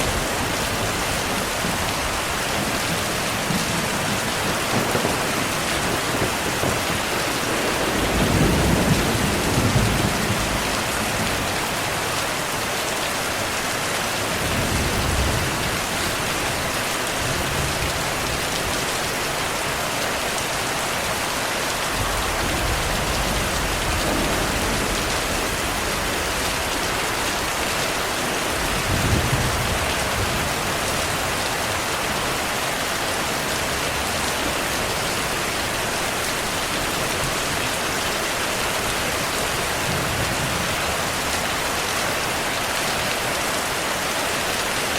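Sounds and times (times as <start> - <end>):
thunder rumbling: 0.0 - 12.2, 21.9 - 31.9
heavy rain: 0.0 - 44.9.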